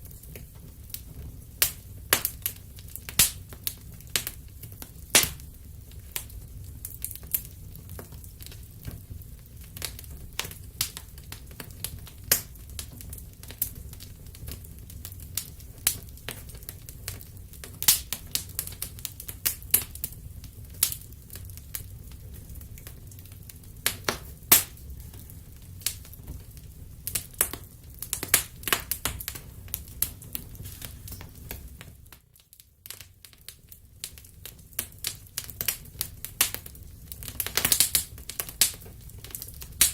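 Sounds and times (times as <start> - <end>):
low fire rumble: 0.0 - 39.9
wood fire crackling and popping: 0.0 - 39.9.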